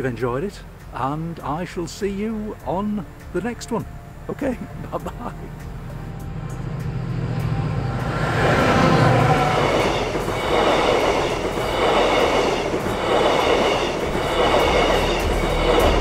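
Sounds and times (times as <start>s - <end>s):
train engine hum: 0.0s - 16.0s
train wheels rumbling: 0.0s - 16.0s
wheels squealing on rails: 5.9s - 16.0s.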